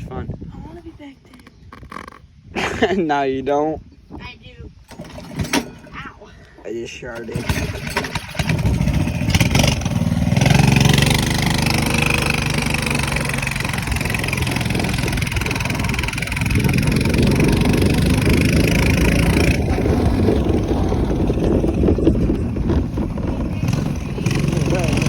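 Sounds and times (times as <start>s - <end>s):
minibike engine rumbling: 0.6s - 2.6s, 4.9s - 25.0s.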